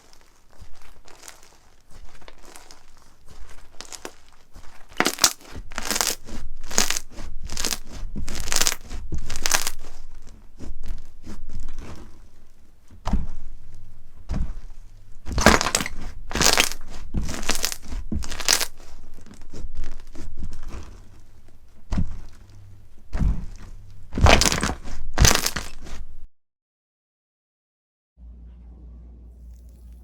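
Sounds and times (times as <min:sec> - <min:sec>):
slime squelching by hand: 0:00.0 - 0:26.3
dull low thumps: 0:07.3 - 0:25.4.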